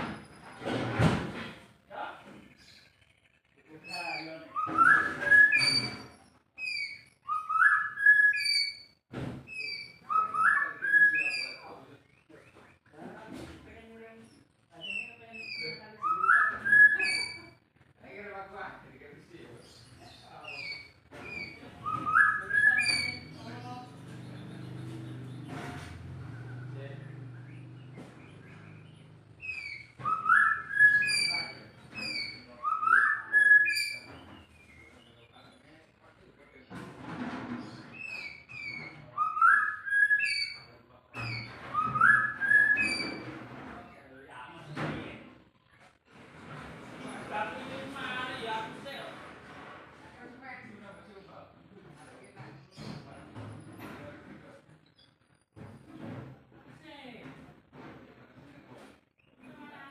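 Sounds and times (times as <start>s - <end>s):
bird singing chirps and whistle: 3.9s - 6.0s, 6.6s - 8.9s, 9.6s - 11.6s, 14.9s - 17.4s, 20.5s - 23.4s, 28.7s - 34.9s, 38.0s - 43.2s.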